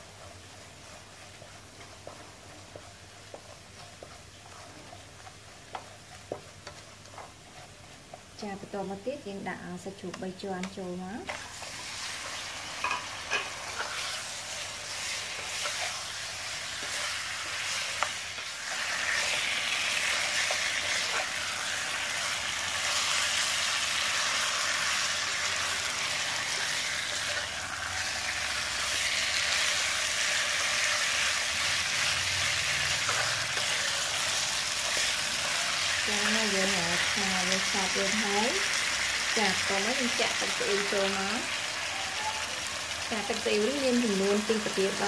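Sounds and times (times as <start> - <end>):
meat sizzling in a wok: 0.0 - 45.0.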